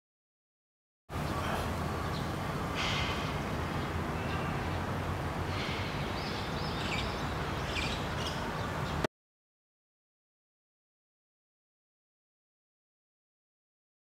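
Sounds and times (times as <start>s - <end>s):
birds chirping: 1.1s - 9.1s.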